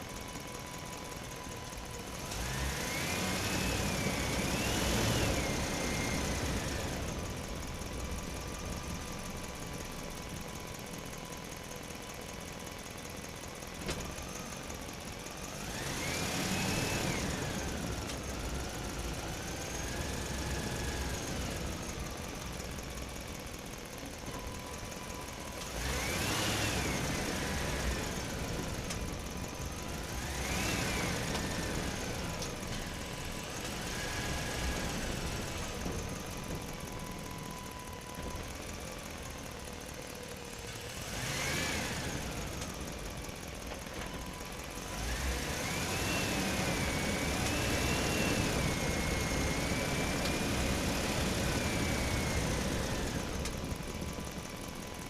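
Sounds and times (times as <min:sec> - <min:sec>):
small electric motors whining: 0:40.5 - 0:55.0.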